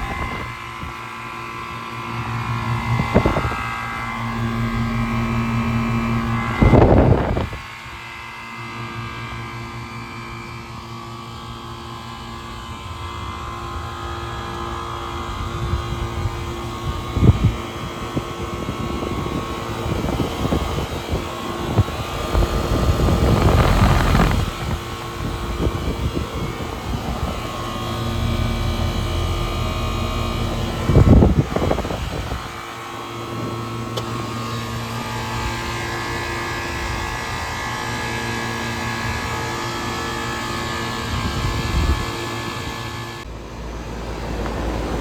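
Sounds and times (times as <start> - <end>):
rushing air: 0.0 - 0.7, 2.4 - 7.7, 19.1 - 35.6
compressor humming: 0.0 - 45.0
condenser fan whirring: 0.0 - 45.0.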